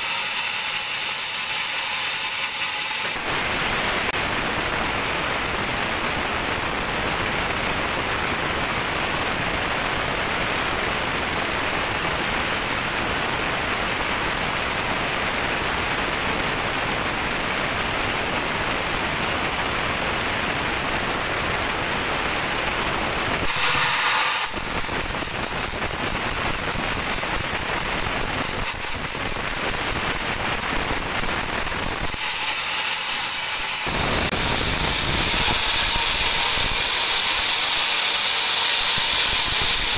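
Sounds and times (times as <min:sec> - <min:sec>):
band saw cutting log: 0:00.0 - 0:04.2, 0:23.3 - 0:29.7, 0:32.0 - 0:39.9.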